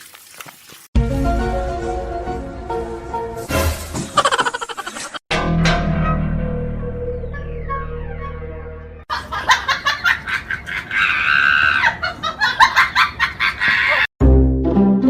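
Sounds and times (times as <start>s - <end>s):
hearty laughter: 4.1s - 5.2s, 9.1s - 14.1s
music sting with falling notes: 5.3s - 9.1s.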